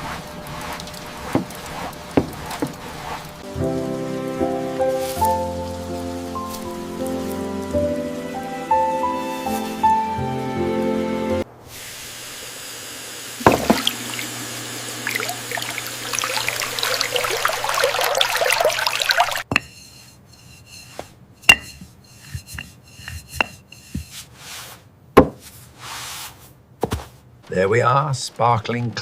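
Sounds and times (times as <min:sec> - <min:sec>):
tap water running into sink: 0:00.4 - 0:08.4, 0:13.4 - 0:19.5
dishes clinking: 0:19.3 - 0:24.1.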